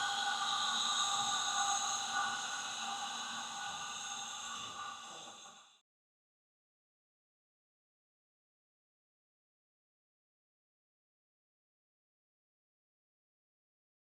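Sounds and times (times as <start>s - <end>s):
steady hiss: 0.0s - 5.6s.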